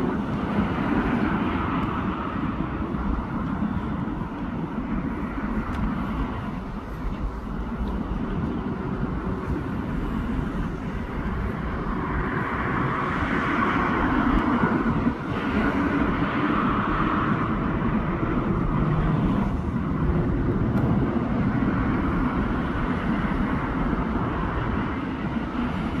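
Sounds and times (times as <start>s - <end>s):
cars passing: 0.0s - 26.0s
road traffic: 0.0s - 26.0s.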